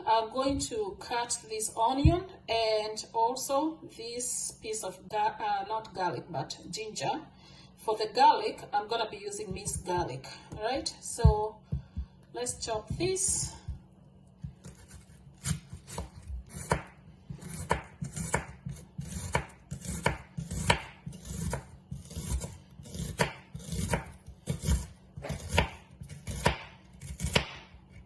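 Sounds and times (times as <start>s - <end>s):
knife chopping on cutting board: 14.4s - 28.0s.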